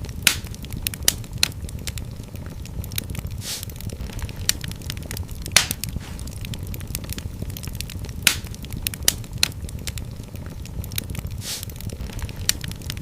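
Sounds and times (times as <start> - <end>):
wood fire crackling: 0.0 - 13.0
brief hiss: 3.4 - 3.7, 11.4 - 11.7.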